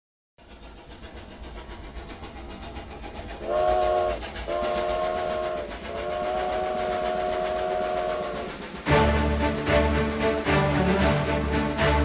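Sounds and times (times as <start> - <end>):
steam locomotive chugging: 0.4 - 12.0
multi-note train whistle: 3.4 - 9.7.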